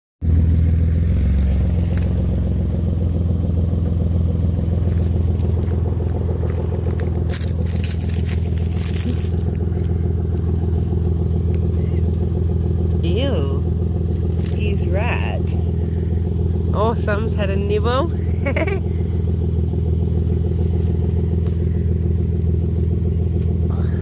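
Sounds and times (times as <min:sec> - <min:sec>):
motor running steadily: 0:00.3 - 0:24.0
rustling and scraping: 0:04.8 - 0:12.3, 0:20.2 - 0:23.7.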